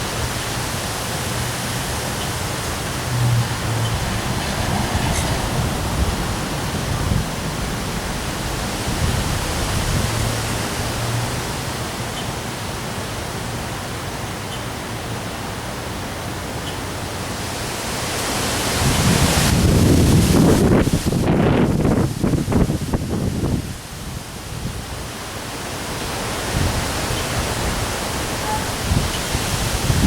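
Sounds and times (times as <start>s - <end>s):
wind buffeting microphone: 0.0s - 12.0s, 17.6s - 25.2s, 25.9s - 30.0s
strong wind: 0.0s - 14.0s, 14.8s - 30.0s
heavy rain hissing: 0.0s - 30.0s.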